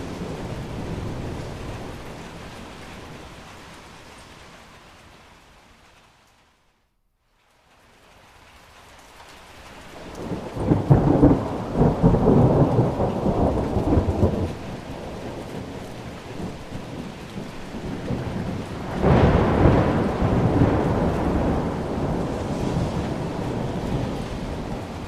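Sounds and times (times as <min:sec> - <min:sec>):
thunder rumbling: 0:00.0 - 0:03.7, 0:10.0 - 0:25.0
steady rain: 0:00.0 - 0:25.0.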